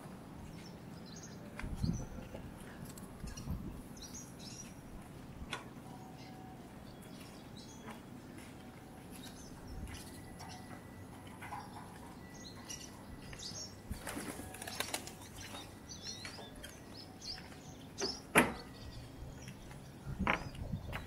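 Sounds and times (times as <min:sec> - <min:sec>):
birds chirping: 0:00.0 - 0:21.0
wings flapping: 0:13.9 - 0:15.4.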